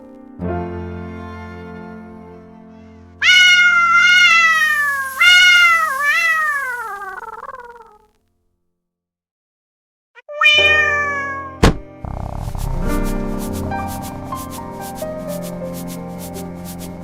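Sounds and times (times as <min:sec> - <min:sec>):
cat meowing: 0:03.2 - 0:08.0, 0:10.2 - 0:13.2.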